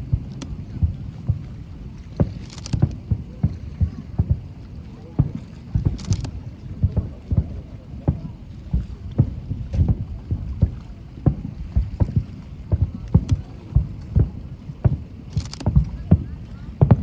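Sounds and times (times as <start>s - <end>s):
firework shells booming: 5.2s - 17.0s.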